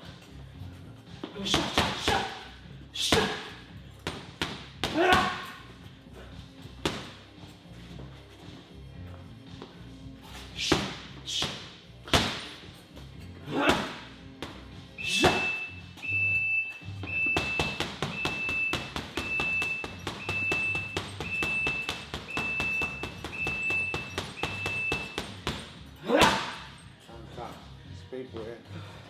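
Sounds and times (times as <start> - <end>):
high beep: 15.0 - 25.4.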